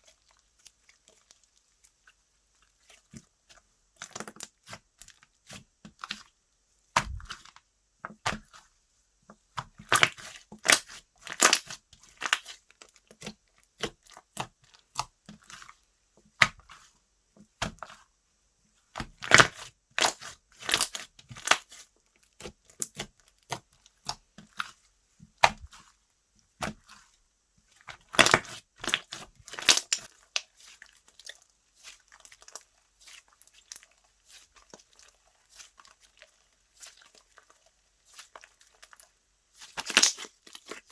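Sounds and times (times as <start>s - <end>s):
slime crackling and popping: 9.6s - 15.6s, 19.0s - 21.8s, 27.8s - 36.2s, 39.6s - 40.9s.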